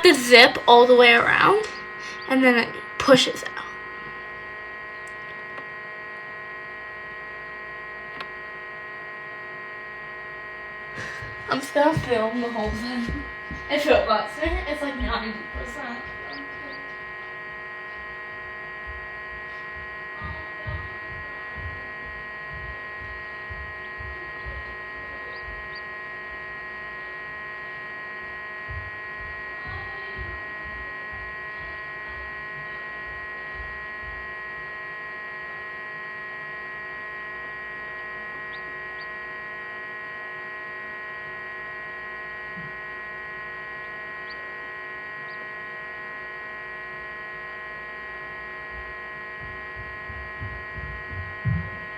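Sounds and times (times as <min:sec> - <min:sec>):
incubator electric hum: 0:00.0 - 0:51.9
low thumps: 0:19.8 - 0:24.7, 0:48.8 - 0:51.9.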